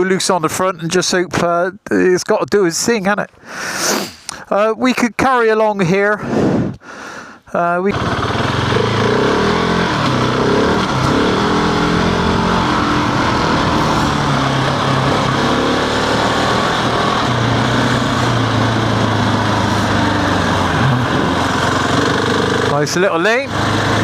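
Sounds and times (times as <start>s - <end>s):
wind and tyre noise: 5.9s - 6.8s, 7.9s - 24.0s
motorcycle engine revving: 7.9s - 24.0s.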